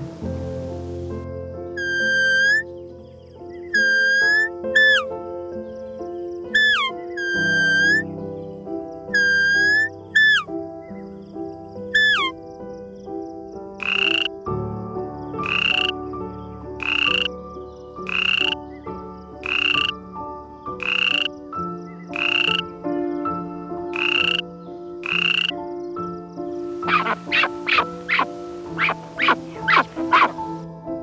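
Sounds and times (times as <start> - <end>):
soft background music: 0.0 - 31.0
animal croaking call: 1.8 - 2.6, 3.8 - 5.1, 6.6 - 8.0, 9.1 - 10.5, 12.0 - 12.3, 13.8 - 14.3, 15.4 - 16.0, 16.8 - 17.3, 18.1 - 18.6, 19.4 - 20.0, 20.8 - 21.3, 22.2 - 22.7, 24.0 - 24.4, 25.0 - 25.6, 26.8 - 30.5
sharp falling animal calls: 1.8 - 2.6, 3.8 - 5.1, 6.6 - 8.0, 9.2 - 10.5, 12.0 - 12.3, 13.8 - 14.3, 26.8 - 30.5.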